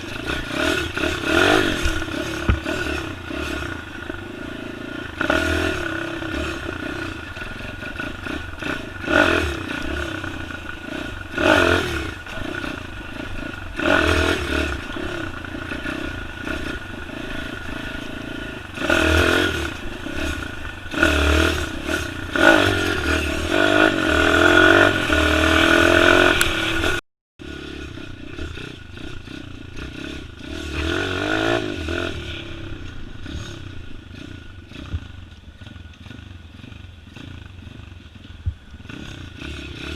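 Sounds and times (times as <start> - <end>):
bike rattling: 0.0 - 27.0
motorbike engine revving: 0.0 - 39.9.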